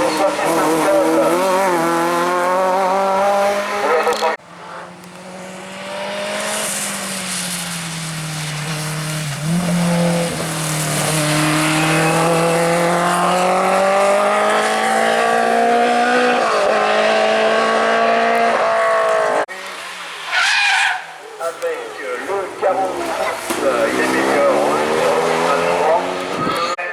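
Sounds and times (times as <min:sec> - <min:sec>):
race car engine revving: 0:00.0 - 0:20.3, 0:21.0 - 0:26.8
gear changes: 0:21.0 - 0:26.8.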